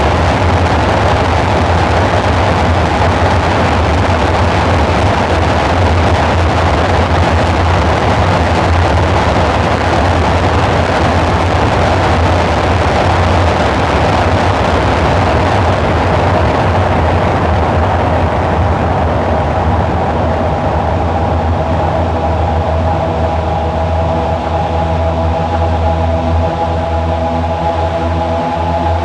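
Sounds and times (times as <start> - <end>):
dark synthesizer drone: 0.0 - 29.0.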